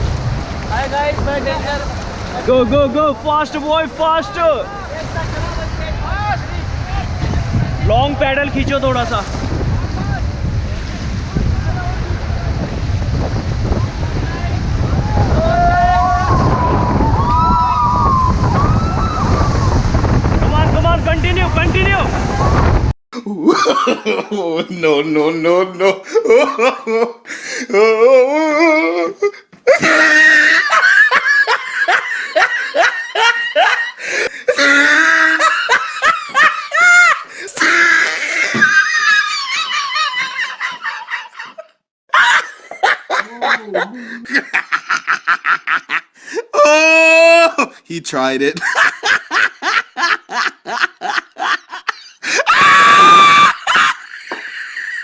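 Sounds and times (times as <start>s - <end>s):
steady rushing noise: 0.0s - 22.9s
high-pitched scream: 15.1s - 19.8s, 52.5s - 53.8s
people laughing loudly: 23.4s - 27.2s, 29.7s - 46.8s, 48.6s - 55.0s
person shouting: 46.5s - 47.7s.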